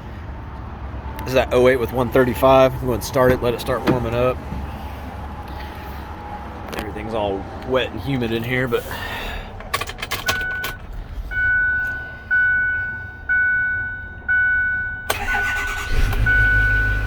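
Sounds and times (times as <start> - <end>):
truck engine idling: 0.0 - 17.0
dashboard warning chime: 10.1 - 17.0.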